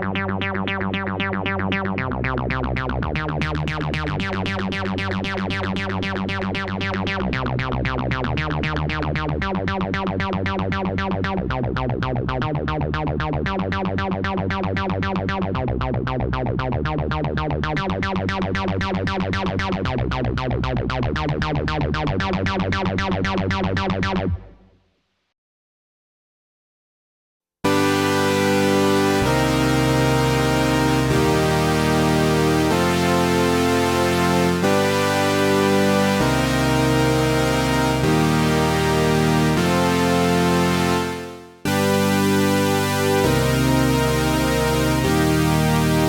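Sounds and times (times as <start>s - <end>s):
synthesizer sequenced pattern: 0.0s - 9.8s, 27.7s - 46.0s
low bass notes: 0.0s - 24.6s, 27.7s - 46.0s.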